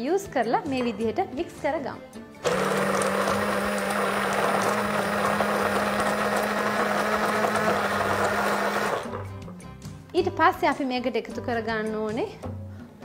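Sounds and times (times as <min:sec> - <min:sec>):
electric hand blender humming: 0:02.4 - 0:09.6.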